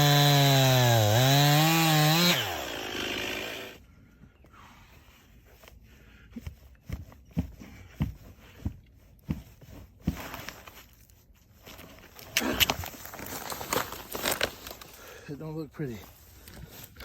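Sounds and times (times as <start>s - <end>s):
leaves rustling and crunching: 12.7s - 15.0s.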